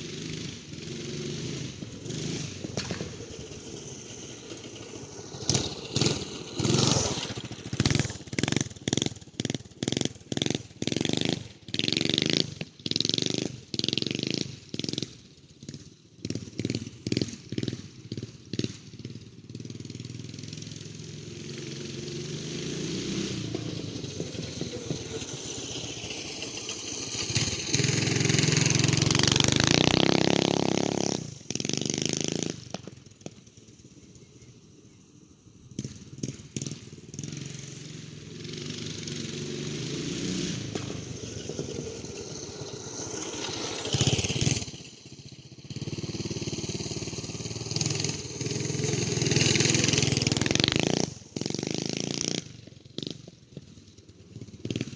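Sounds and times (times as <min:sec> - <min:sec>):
minibike engine revving: 0:00.0 - 0:54.9.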